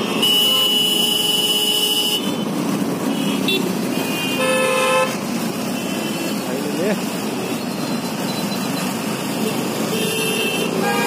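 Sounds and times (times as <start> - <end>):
vehicle horns honking: 0.0 - 6.4, 9.4 - 11.0
street traffic: 0.0 - 11.0.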